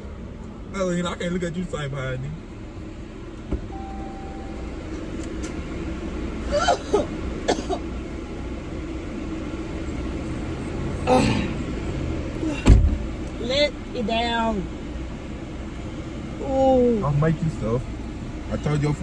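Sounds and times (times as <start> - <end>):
car interior rumble: 0.0 - 19.0
person coughing: 6.5 - 7.8.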